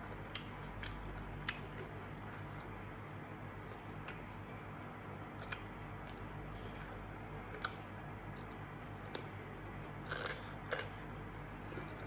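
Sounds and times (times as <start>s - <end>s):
close-up chewing and biting: 7.5s - 11.1s.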